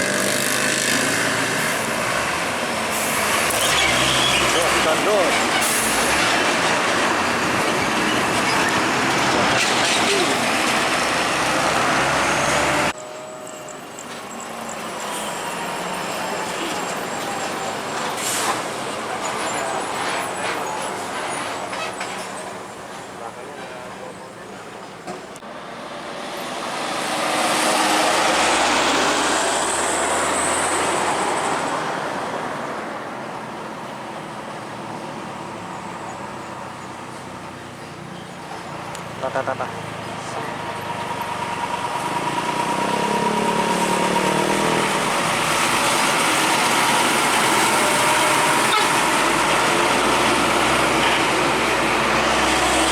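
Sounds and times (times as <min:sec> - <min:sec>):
heavy trucks passing: 0:00.0 - 0:52.9
quieter traffic noise: 0:00.0 - 0:52.9
heavy truck driving past: 0:38.4 - 0:52.9.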